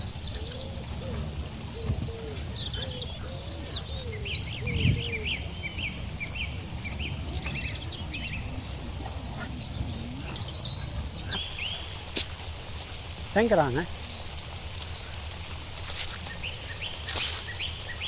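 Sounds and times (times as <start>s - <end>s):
steady low rumble: 0.0s - 13.3s
birds chirping and twittering: 0.0s - 18.0s.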